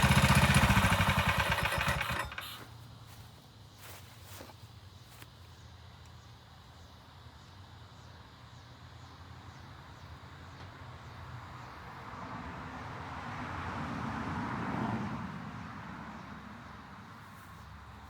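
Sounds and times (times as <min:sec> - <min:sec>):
vehicle passing by: 0:11.8 - 0:18.0.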